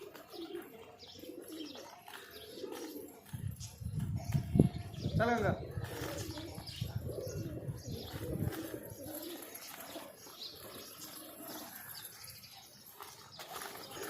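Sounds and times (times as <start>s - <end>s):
pigeons cooing: 0.0s - 14.0s.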